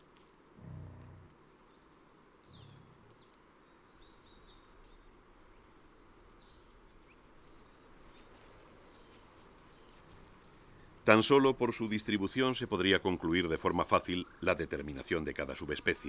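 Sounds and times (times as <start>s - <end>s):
high thin bird calls: 0.6s - 1.8s, 2.5s - 3.3s.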